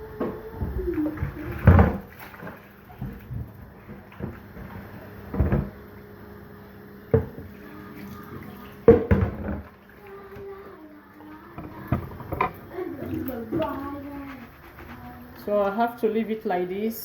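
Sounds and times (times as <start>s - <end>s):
water sloshing in a bowl: 0.0s - 6.2s, 7.1s - 16.4s
rice being rinsed: 7.1s - 16.2s.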